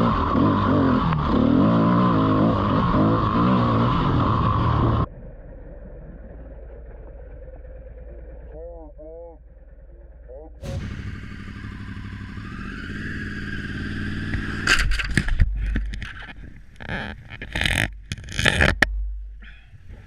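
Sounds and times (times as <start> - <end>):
motorcycle engine speeding up: 0.0 - 5.1, 10.6 - 17.8
motorcycle crashing: 10.6 - 17.9.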